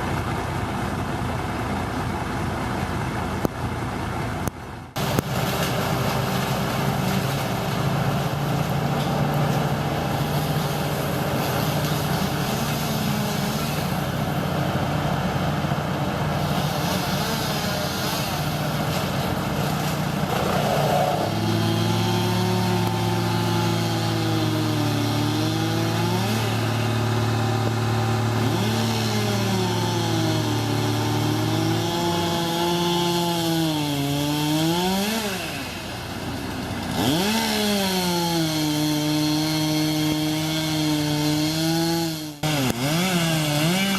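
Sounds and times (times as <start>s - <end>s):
higher engine revving: 16.4s - 35.9s, 36.9s - 43.9s.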